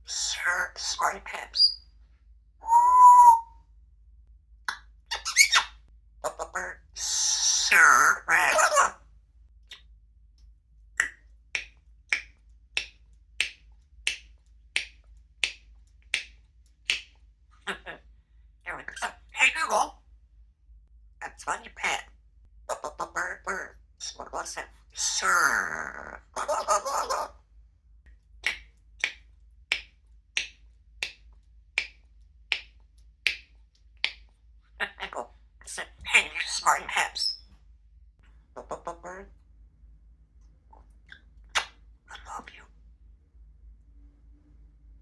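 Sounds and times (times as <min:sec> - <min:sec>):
parrot mouth clicks: 0:40.8 - 0:41.8.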